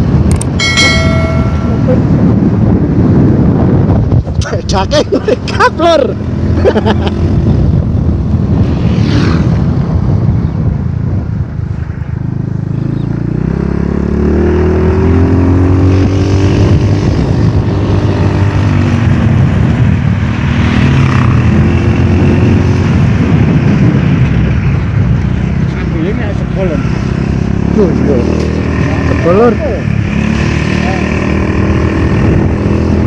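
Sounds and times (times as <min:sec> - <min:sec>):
heavy low rumble: 0:00.0 - 0:05.3
motorcycle engine running: 0:00.1 - 0:03.8.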